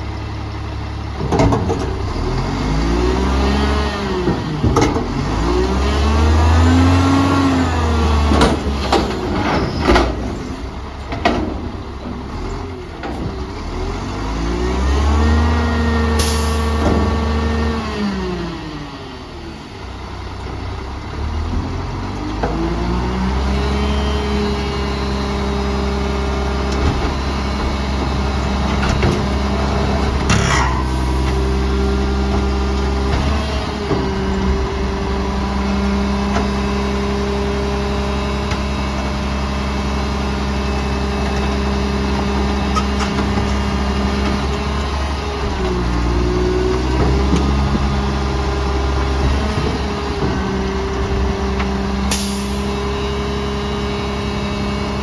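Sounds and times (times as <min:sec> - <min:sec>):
garbage truck diesel engine revving: 0:00.0 - 0:55.0
clunks: 0:01.1 - 0:02.3, 0:04.2 - 0:05.6, 0:08.2 - 0:13.8, 0:26.5 - 0:35.6, 0:42.6 - 0:52.8.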